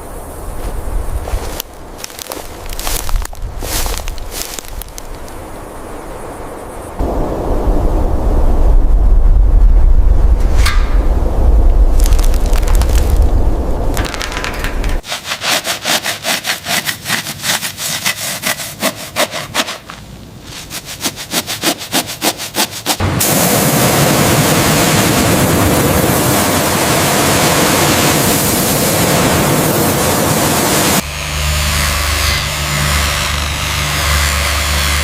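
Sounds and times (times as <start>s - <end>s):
low humming: 0.0s - 15.0s
loud steady hiss: 22.8s - 35.0s.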